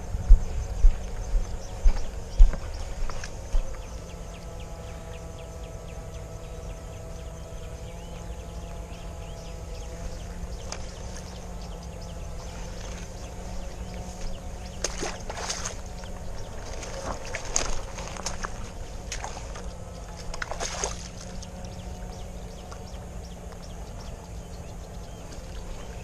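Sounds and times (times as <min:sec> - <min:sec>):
faint electrical whine: 0:00.0 - 0:26.0
wading through water: 0:00.0 - 0:26.0
water splashes: 0:12.4 - 0:21.8.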